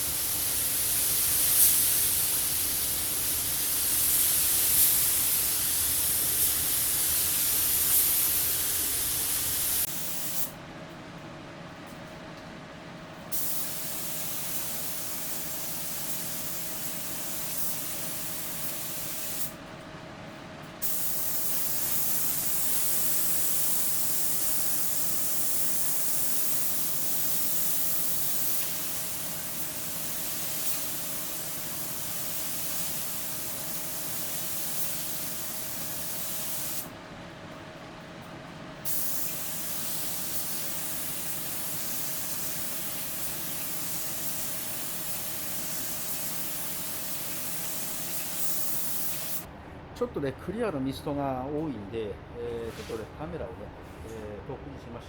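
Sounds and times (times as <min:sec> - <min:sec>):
paint spray gun hissing: 0:00.0 - 0:10.5, 0:13.3 - 0:19.5, 0:20.8 - 0:36.9, 0:38.8 - 0:49.5.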